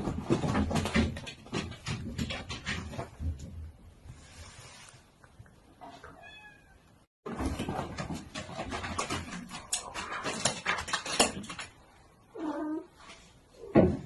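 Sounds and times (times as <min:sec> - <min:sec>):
rustling and scuffling with knocks: 0:00.0 - 0:05.2, 0:07.3 - 0:12.0, 0:12.9 - 0:14.0
cat meowing: 0:06.0 - 0:06.8.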